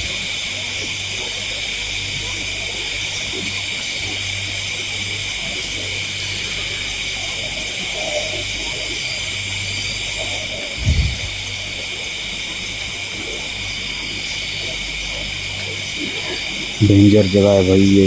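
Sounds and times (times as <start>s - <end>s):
insect chorus hissing: 0.0s - 18.0s
low hum: 10.6s - 11.6s
low thump: 10.8s - 11.4s.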